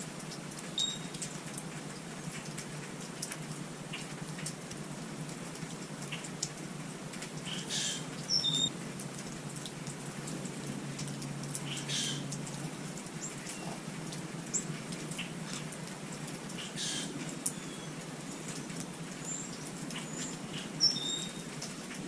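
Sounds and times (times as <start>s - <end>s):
light ticks: 0.2s - 22.0s
small birds chirping: 7.4s - 8.7s, 11.6s - 15.8s, 16.5s - 21.8s.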